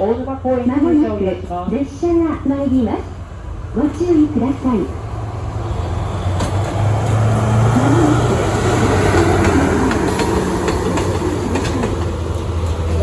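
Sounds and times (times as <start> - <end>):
train hum and rolling wheels: 0.0 - 13.0
wheels clicking over rail joints: 6.3 - 13.0.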